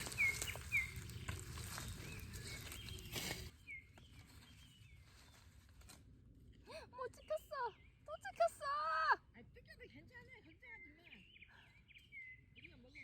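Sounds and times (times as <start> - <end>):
small birds chirping: 0.0 - 5.6, 6.4 - 13.0
rustling background: 0.0 - 6.2.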